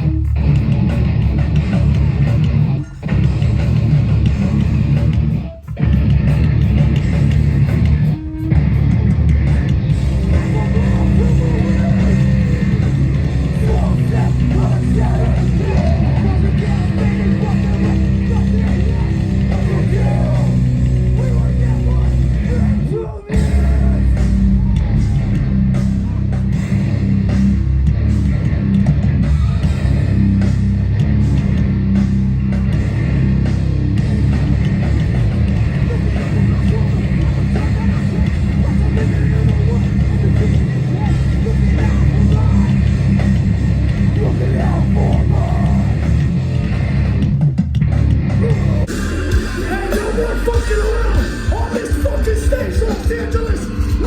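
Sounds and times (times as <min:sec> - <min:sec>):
hardcore band playing live: 0:00.0 - 0:54.0.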